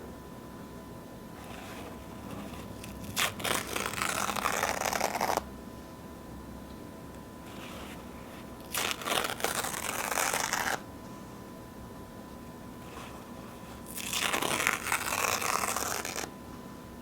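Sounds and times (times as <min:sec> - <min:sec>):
paper towel tearing: 0:01.4 - 0:05.5, 0:07.5 - 0:10.8, 0:12.8 - 0:16.3.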